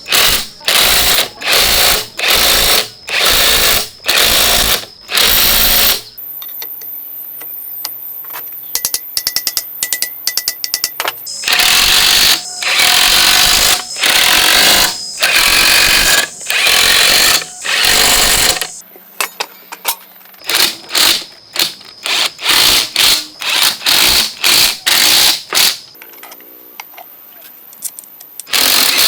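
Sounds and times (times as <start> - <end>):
power tool bursts: 0.0 - 6.2, 11.3 - 18.8, 20.4 - 25.9, 28.5 - 29.0.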